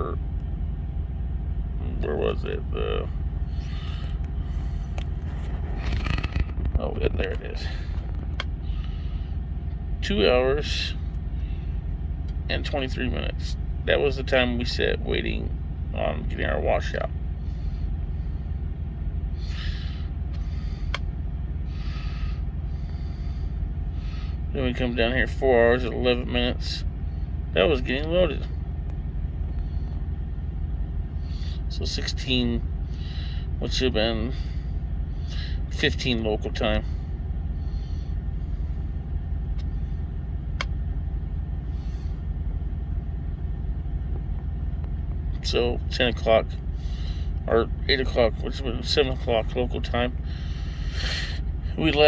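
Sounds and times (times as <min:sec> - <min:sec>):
diesel engine idling: 0:00.0 - 0:52.0.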